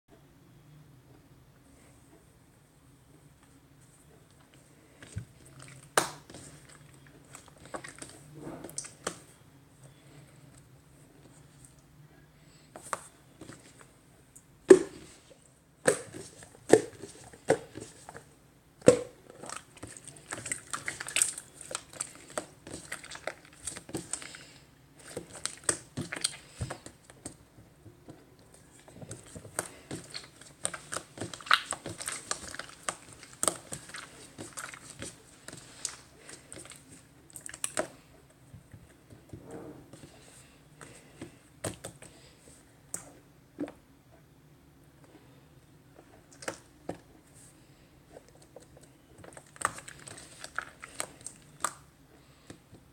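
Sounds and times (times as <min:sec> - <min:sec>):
slime squishing and popping: 0:05.6 - 0:09.2, 0:18.8 - 0:27.4, 0:29.2 - 0:38.0.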